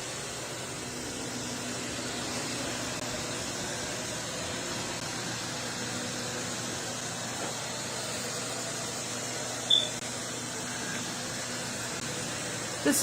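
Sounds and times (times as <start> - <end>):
robot vacuum fan whir: 0.0 - 13.0
short high chirp: 9.7 - 10.0.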